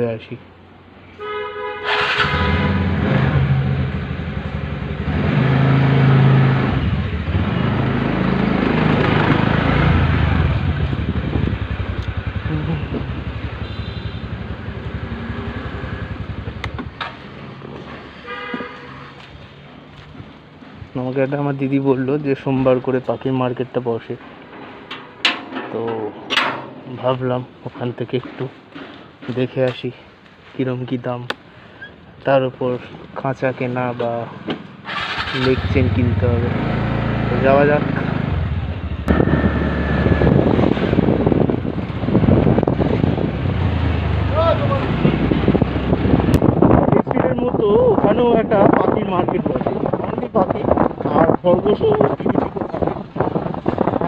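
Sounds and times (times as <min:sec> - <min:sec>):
vehicle horn honking: 0:01.2 - 0:03.0, 0:13.5 - 0:14.5, 0:18.2 - 0:19.2
motorcycle engine running: 0:02.4 - 0:17.8
wind buffeting microphone: 0:08.7 - 0:18.0, 0:38.3 - 0:54.0
engine pulsing: 0:38.2 - 0:42.7.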